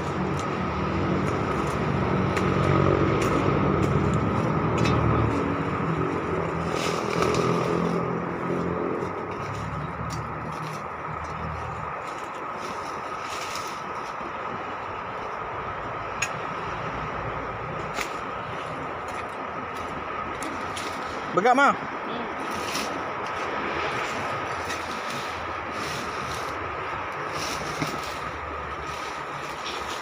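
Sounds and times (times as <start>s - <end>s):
vehicle engine humming: 0.0s - 30.0s.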